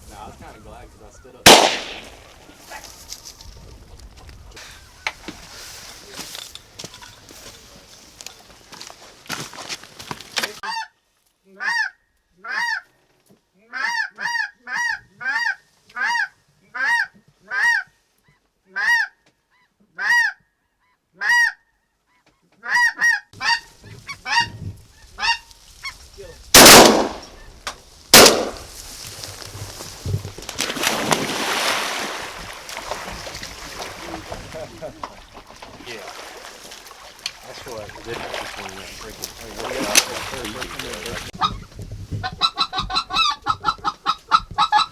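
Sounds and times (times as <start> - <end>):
shotgun shots: 1.5 - 2.3, 26.6 - 27.4, 28.1 - 28.7
goose honking: 22.6 - 24.6.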